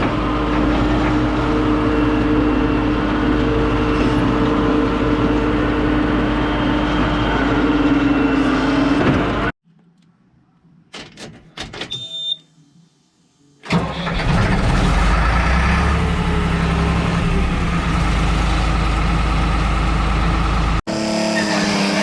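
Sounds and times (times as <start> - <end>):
engine starting and running: 13.6 - 22.0.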